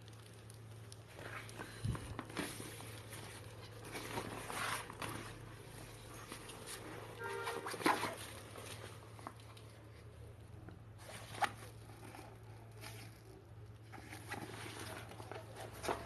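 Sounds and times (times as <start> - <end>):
fabric bag rustling: 1.1 - 9.9.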